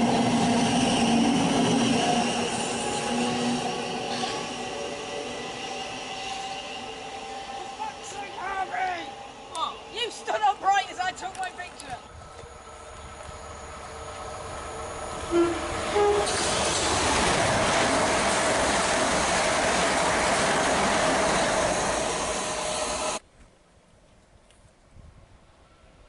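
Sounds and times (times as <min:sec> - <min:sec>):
train passing at speed: 0:00.0 - 0:23.2
train horn notes: 0:15.2 - 0:16.5.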